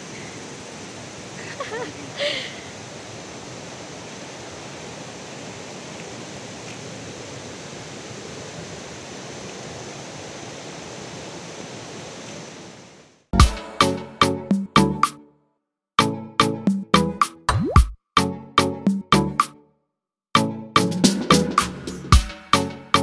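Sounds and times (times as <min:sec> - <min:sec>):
waterfall rushing: 0:00.0 - 0:13.0
music with sharp pitched strikes: 0:13.4 - 0:15.2, 0:20.8 - 0:23.0.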